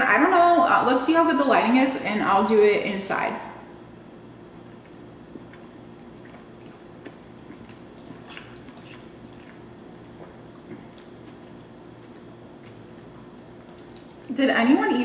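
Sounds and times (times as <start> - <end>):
steady low hum: 0.0 - 15.0
wet chewing of food: 3.6 - 14.3.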